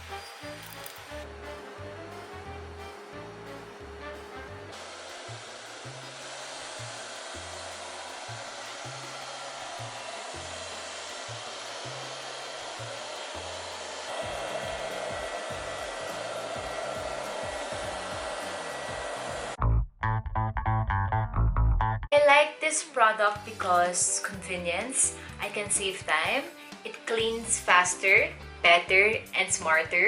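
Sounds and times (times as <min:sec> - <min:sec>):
robot vacuum cleaner running: 0:00.0 - 0:19.6
quiet background music with bass: 0:00.0 - 0:30.0.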